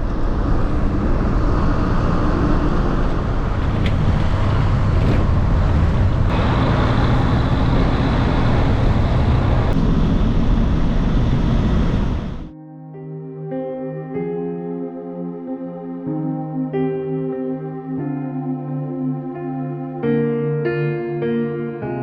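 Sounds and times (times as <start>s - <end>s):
waterfall roaring: 3.2s - 12.5s.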